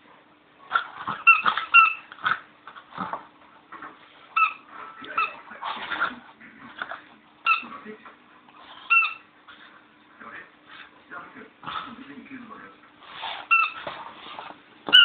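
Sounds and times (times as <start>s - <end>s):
dog chewing and scuffling: 0.6s - 10.0s, 10.6s - 15.0s
squeaky toy squeaking: 1.1s - 2.1s, 4.4s - 5.4s, 7.4s - 7.7s, 8.8s - 9.3s, 13.4s - 13.9s.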